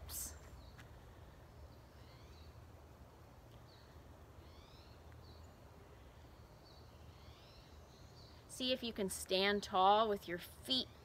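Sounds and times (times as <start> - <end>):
faint birdsong: 0.0 - 11.0.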